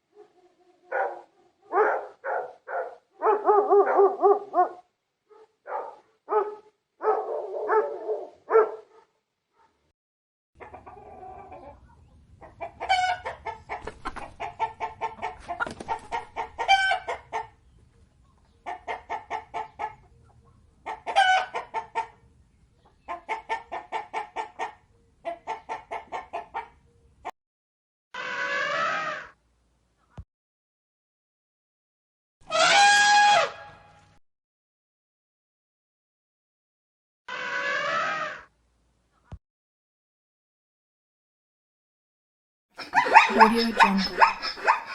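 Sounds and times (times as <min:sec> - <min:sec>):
dog barking: 0:00.1 - 0:09.8, 0:42.8 - 0:44.9
chickens clucking and cackling: 0:10.6 - 0:27.3, 0:42.8 - 0:44.9.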